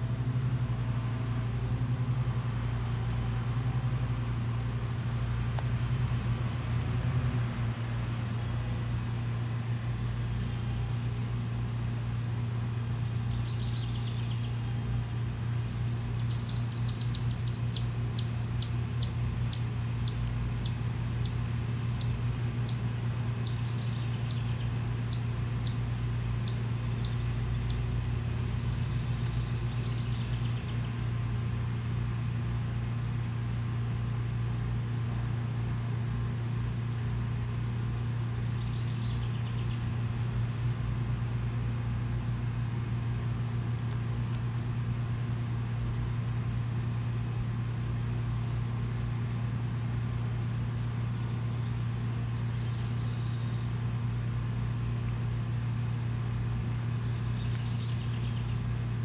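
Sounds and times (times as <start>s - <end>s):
steady low rumble: 0.0s - 59.0s
bird chirping: 15.8s - 21.4s, 23.4s - 25.8s, 26.4s - 30.7s, 52.2s - 53.6s, 57.0s - 58.6s.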